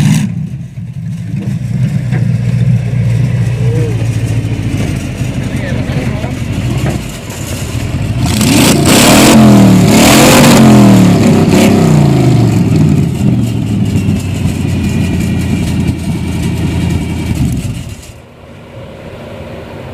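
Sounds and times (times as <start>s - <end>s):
truck engine revving: 0.0s - 19.9s.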